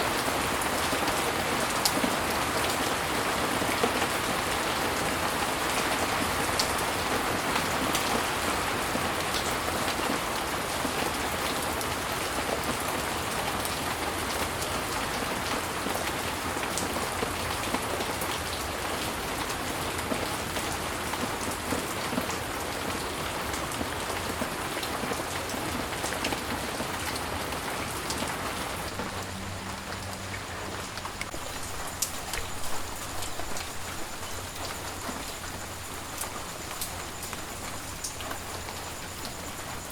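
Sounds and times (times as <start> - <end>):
heavy rain: 0.0 - 39.9
raindrops ticking: 28.0 - 39.9.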